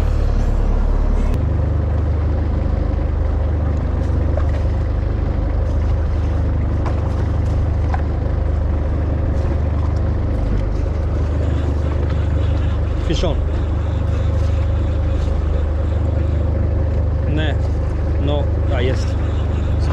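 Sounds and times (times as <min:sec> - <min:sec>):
motorboat engine humming: 0:00.0 - 0:19.9.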